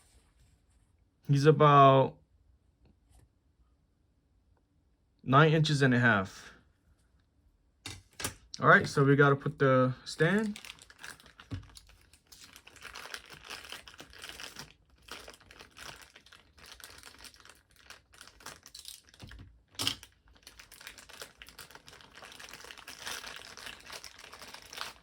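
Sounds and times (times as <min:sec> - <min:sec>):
plastic packaging crinkling: 0:10.2 - 0:25.0.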